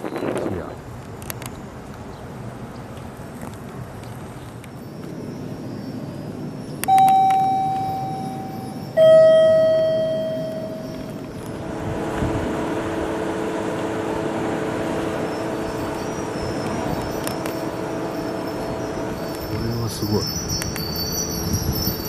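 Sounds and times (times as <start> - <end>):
drone with held tones: 6.8 - 22.0
two-note descending chime: 6.9 - 11.1.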